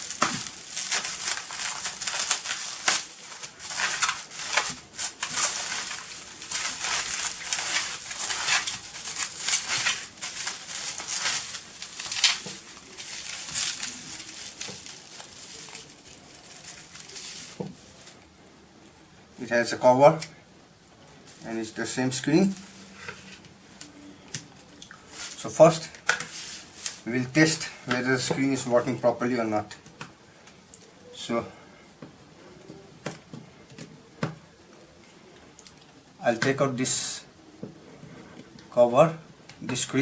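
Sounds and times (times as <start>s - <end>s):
packaging wrap crinkling: 0.0s - 18.2s.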